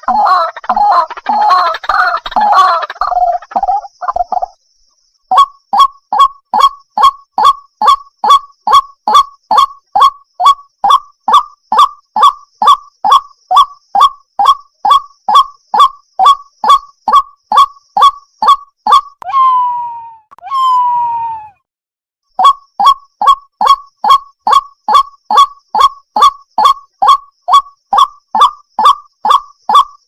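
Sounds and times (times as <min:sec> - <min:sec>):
water hen calling: 0:00.0 - 0:04.4.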